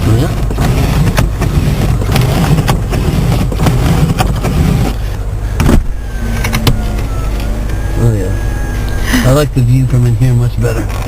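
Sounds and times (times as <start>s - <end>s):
car engine rumbling: 0.0s - 11.0s
thump: 5.6s - 5.9s.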